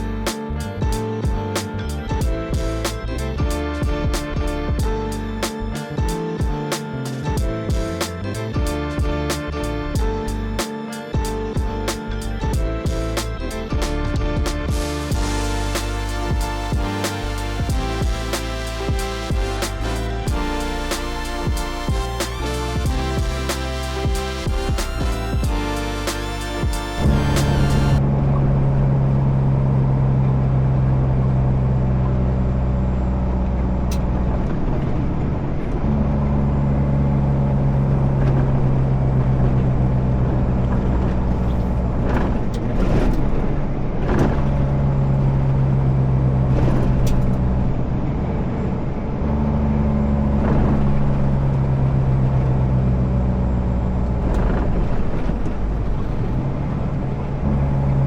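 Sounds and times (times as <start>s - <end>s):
truck diesel engine drone: 0.0s - 58.0s.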